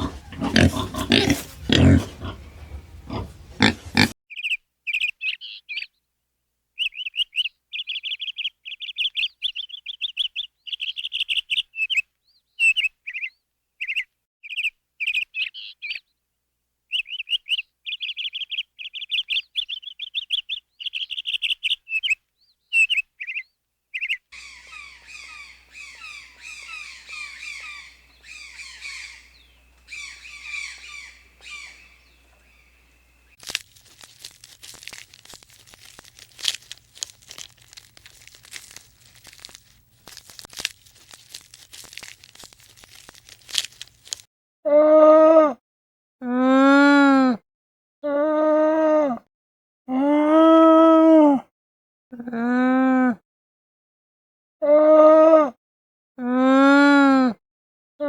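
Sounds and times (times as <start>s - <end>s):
loud animal call: 0.0s - 4.1s, 24.4s - 33.0s
small birds chirping: 0.0s - 6.0s, 6.8s - 16.2s, 16.9s - 44.3s.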